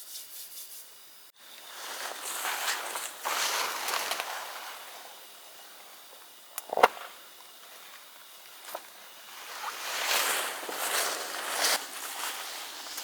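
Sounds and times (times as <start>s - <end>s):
rustling: 1.6s - 5.7s, 8.5s - 13.0s.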